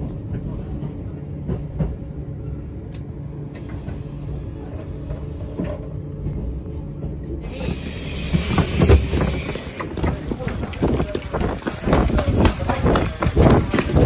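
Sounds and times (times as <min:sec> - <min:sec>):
train running rumble: 0:00.0 - 0:14.0
quick footsteps: 0:08.9 - 0:14.0.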